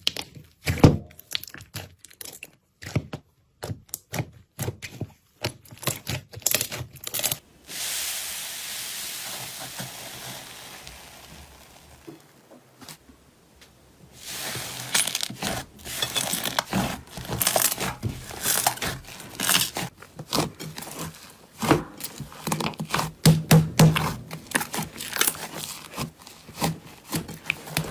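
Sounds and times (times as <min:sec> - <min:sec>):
steady hiss: 0:07.4 - 0:16.7
slime crackling and popping: 0:08.6 - 0:13.5, 0:14.1 - 0:27.9.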